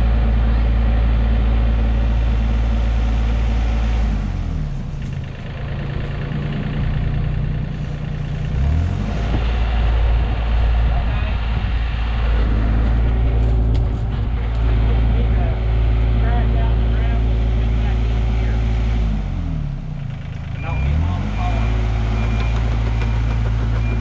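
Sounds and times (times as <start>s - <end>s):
diesel engine revving: 0.0s - 24.0s.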